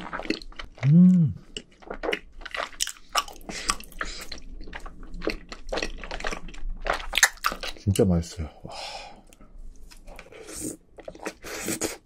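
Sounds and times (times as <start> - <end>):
wet chewing with smacks: 0.0 - 7.8
person humming: 0.8 - 1.4.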